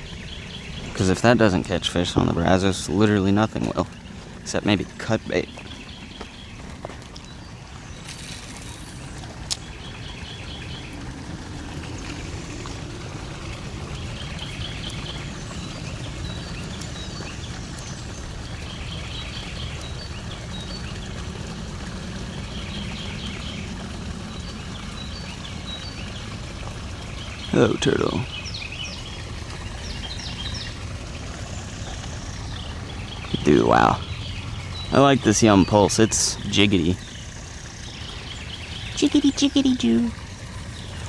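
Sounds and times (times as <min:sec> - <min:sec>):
bird trilling: 0:07.9 - 0:09.7, 0:38.8 - 0:40.2
faint high chirps: 0:08.0 - 0:09.7.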